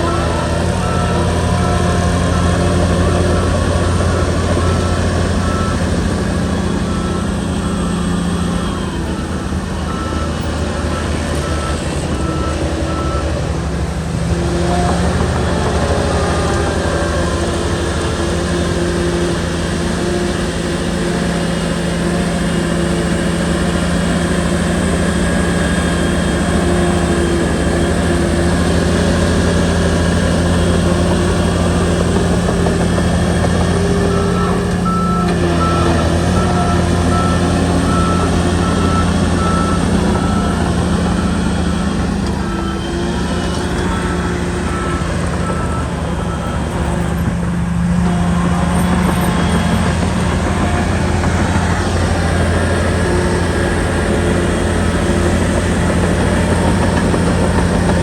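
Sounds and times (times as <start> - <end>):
bulldozer diesel engine running: 0.0 - 58.0
back-up alarm beeping: 22.5 - 58.0.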